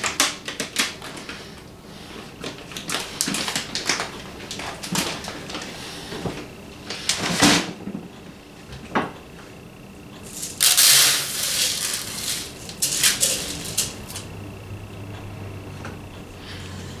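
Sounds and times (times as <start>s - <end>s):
seed rustling rush: 10.2s - 14.3s.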